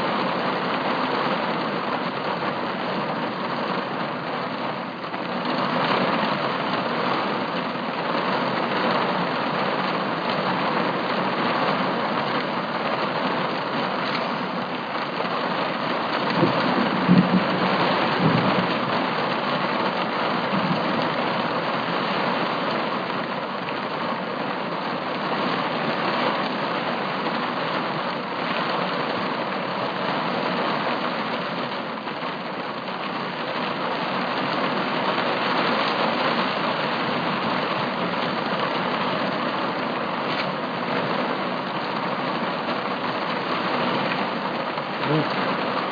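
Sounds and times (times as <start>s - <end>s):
heavy rain falling: 0.0s - 45.9s
low rumble of thunder: 16.3s - 19.1s.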